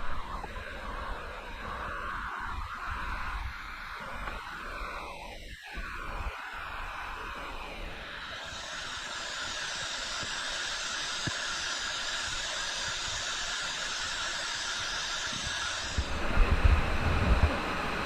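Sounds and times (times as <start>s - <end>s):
low rumbling buffets: 15.9s - 18.0s.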